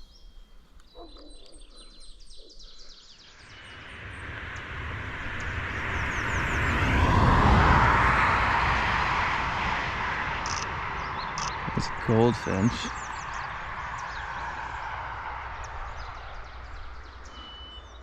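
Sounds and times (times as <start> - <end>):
vehicle passing on highway: 3.5 - 18.0
songbirds singing high notes: 10.5 - 14.1.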